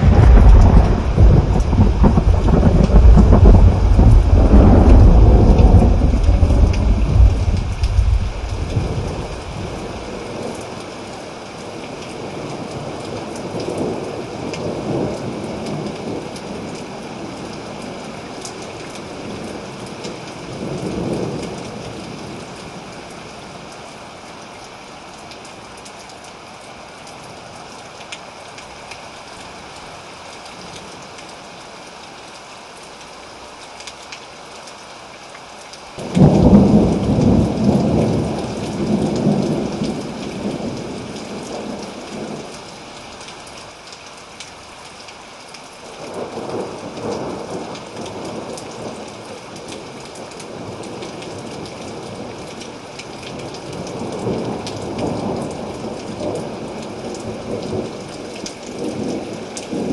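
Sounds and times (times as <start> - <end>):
thunder rolling: 0.0 - 10.2, 36.0 - 42.4
steady rain: 0.0 - 59.9.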